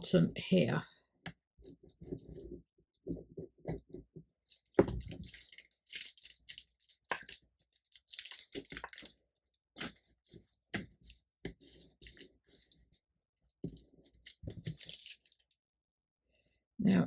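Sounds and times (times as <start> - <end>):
parchment paper crackling: 4.5 - 13.0, 13.6 - 15.6.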